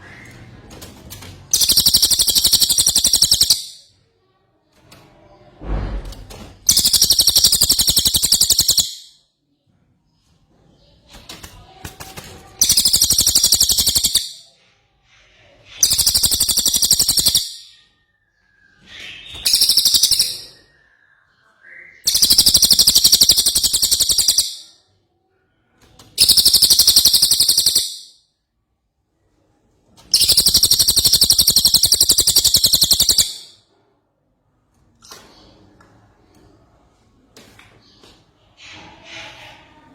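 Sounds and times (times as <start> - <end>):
songbird high rapid trill: 1.6 - 3.7, 6.7 - 9.0, 12.6 - 14.4, 15.8 - 17.6, 19.5 - 20.4, 22.1 - 24.6, 26.2 - 28.1, 30.2 - 33.5.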